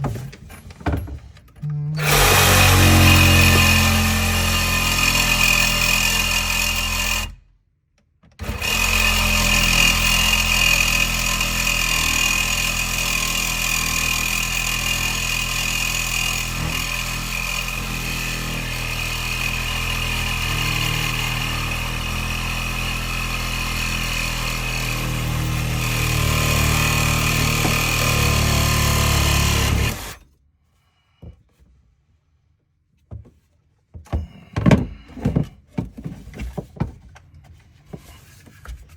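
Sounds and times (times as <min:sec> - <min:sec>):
power tool whining: 0:01.7 - 0:07.4, 0:08.4 - 0:30.2.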